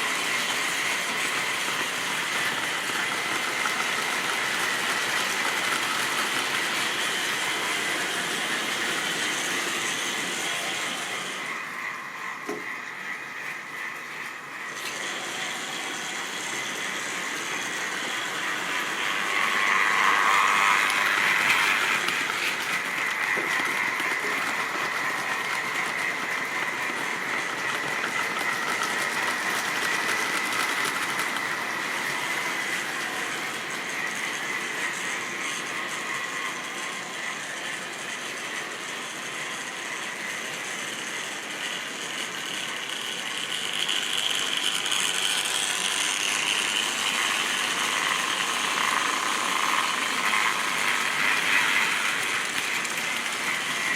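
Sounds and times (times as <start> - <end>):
model train motor whine: 0.0 - 53.9
wheels rattling on rails: 18.0 - 53.9.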